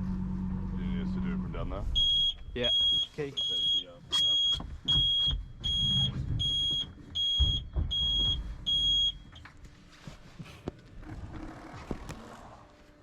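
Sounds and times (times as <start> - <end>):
electronic warning beeps: 1.9 - 9.4
low rumbling and knocking: 4.6 - 8.8.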